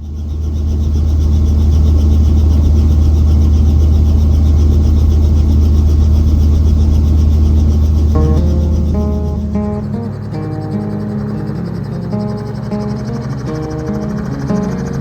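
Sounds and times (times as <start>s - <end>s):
helicopter engine and rotor: 0.0s - 15.0s.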